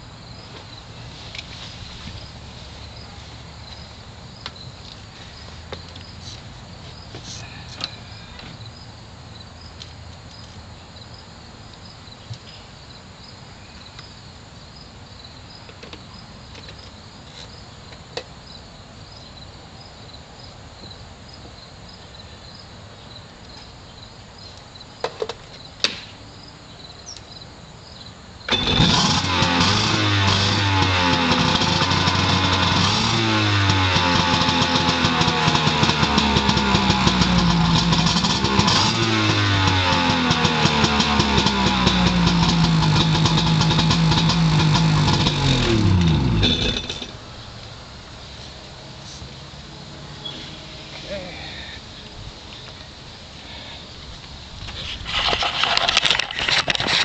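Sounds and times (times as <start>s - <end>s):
jet ski engine revving: 28.5s - 47.2s.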